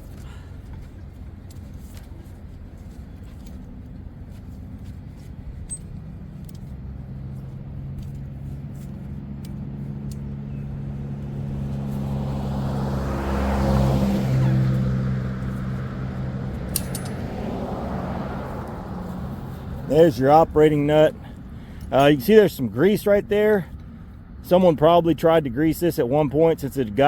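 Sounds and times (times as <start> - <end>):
vehicle engine passing by: 6.0 - 22.2
light metallic clicks: 16.7 - 17.4.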